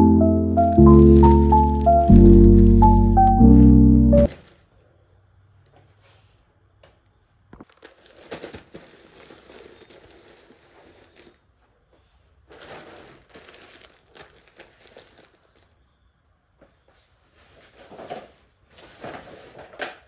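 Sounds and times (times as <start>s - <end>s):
material crinkling and rustling: 0.7s - 3.2s, 4.2s - 4.7s, 7.6s - 10.4s, 12.4s - 15.7s.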